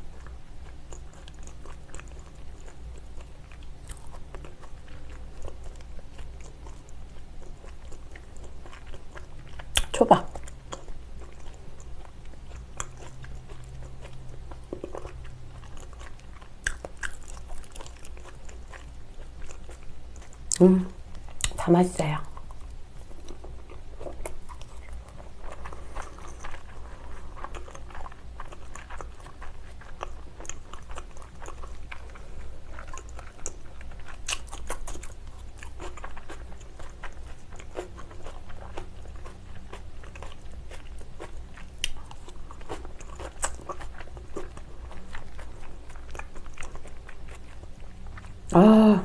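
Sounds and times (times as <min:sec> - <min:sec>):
wet chewing mouth clicks: 0:00.8 - 0:20.6.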